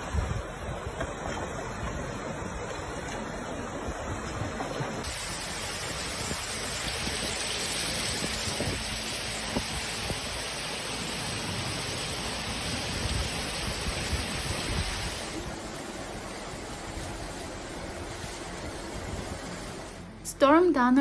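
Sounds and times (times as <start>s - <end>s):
heavy water rushing: 0.0s - 20.3s.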